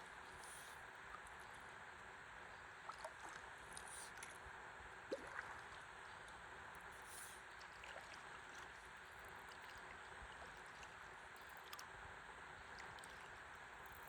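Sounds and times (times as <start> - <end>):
light clicks and drips: 0.0 - 14.0
river water lapping: 2.8 - 4.3, 5.1 - 6.4, 7.0 - 11.8.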